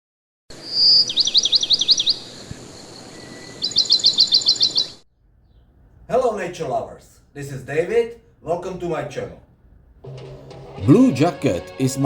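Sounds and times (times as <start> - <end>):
outdoor background hiss: 0.5 - 12.0
songbird singing: 0.6 - 5.7.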